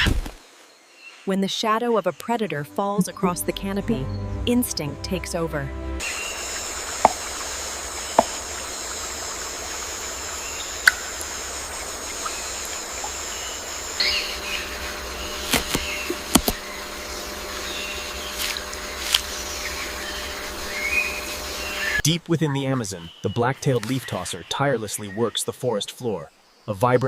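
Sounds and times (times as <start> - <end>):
high insect drone: 6.0 - 22.0.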